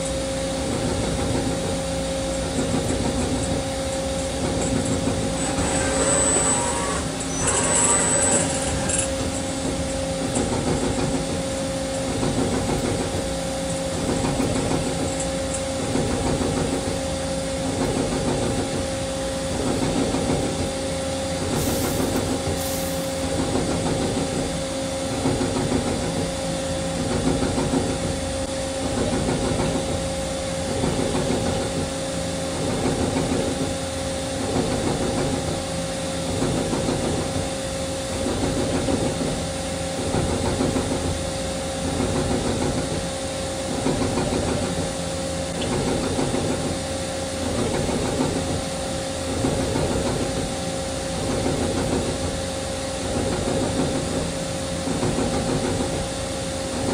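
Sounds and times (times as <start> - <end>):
lathe motor whine: 5.0 - 10.1
lathe cutting noise: 5.3 - 9.4.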